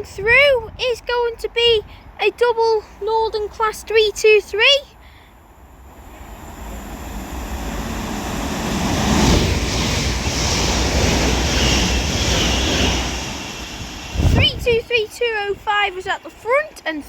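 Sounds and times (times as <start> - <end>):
train wheels rushing on rails: 5.6 - 17.0.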